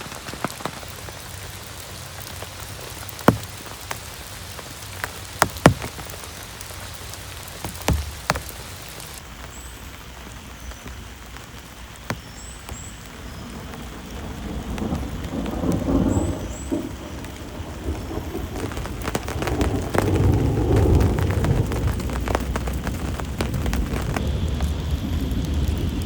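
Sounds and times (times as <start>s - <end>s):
heavy rain: 0.0s - 26.0s
low thunder rumble: 13.1s - 26.0s.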